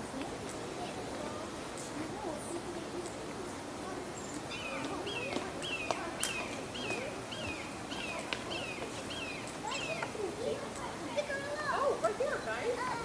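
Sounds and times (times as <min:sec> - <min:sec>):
bird chirping: 0:04.1 - 0:10.6.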